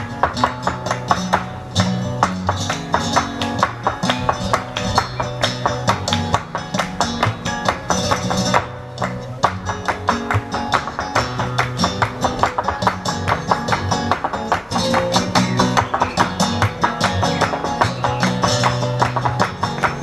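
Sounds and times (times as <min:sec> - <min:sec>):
flamenco guitar music: 0:00.0 - 0:20.0.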